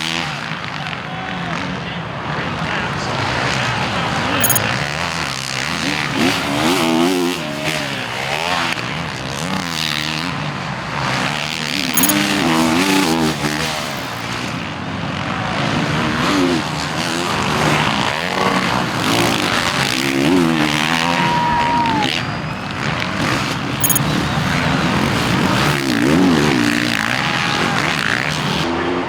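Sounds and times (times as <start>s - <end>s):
motocross bike engines racing: 0.0s - 29.0s.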